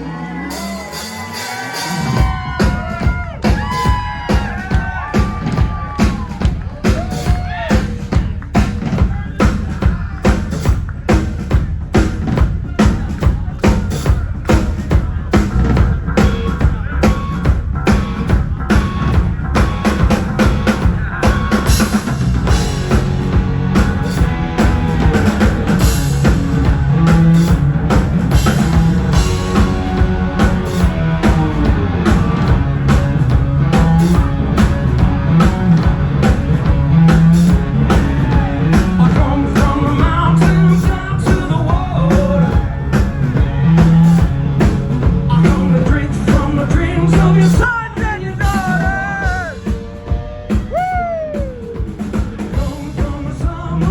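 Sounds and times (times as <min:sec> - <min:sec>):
pounding drum kit: 0:00.0 - 0:53.9
pulsing bass line: 0:00.0 - 0:53.9
rock band playing: 0:00.0 - 0:53.9
person singing: 0:37.9 - 0:42.9, 0:45.2 - 0:49.8, 0:52.4 - 0:53.9.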